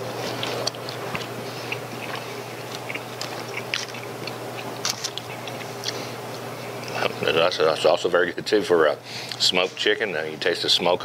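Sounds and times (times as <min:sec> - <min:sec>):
man chewing: 0:00.0 - 0:07.2
low steady hum: 0:00.0 - 0:11.0.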